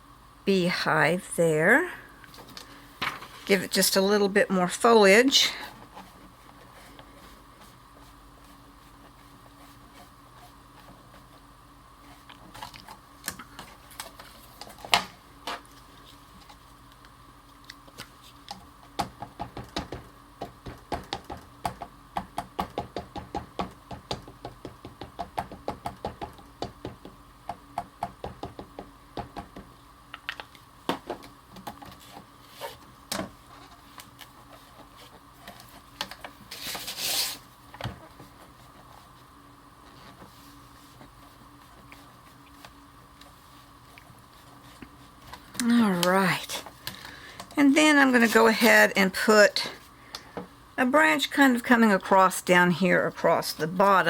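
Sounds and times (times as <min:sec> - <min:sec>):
ink pad tapping on stamp: 0:19.0 - 0:29.7.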